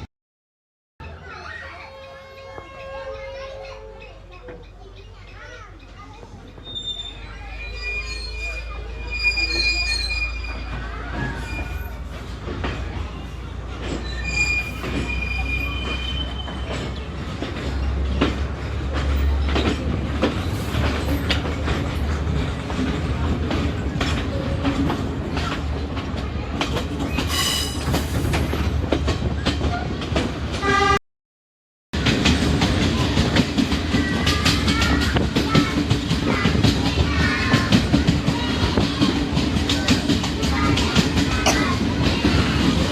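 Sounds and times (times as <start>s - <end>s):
wheels clicking over rail joints: 1.0s - 30.8s, 32.0s - 42.9s
train rumble inside carriage: 1.0s - 31.0s, 32.0s - 42.9s
wheels squealing: 5.0s - 28.7s.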